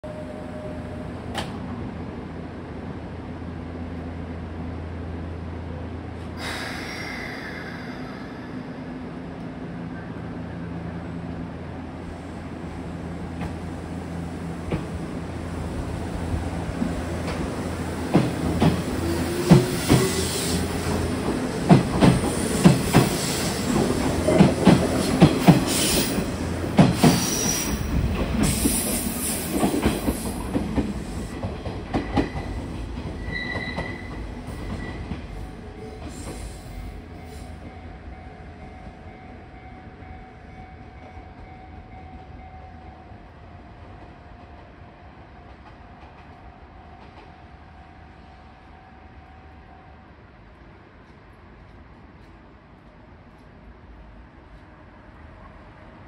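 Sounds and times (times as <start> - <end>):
electric train passing: 0.0 - 56.0
wheel squeal: 33.2 - 35.0.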